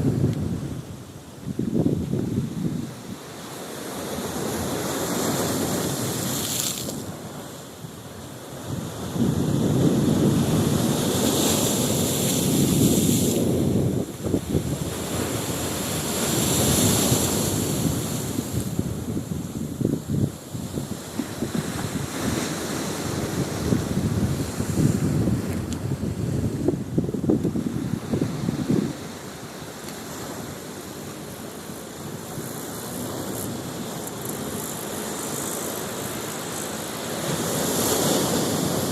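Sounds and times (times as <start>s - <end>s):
wind buffeting microphone: 0.0s - 3.2s, 8.5s - 35.5s
outdoor ambience: 28.9s - 38.2s.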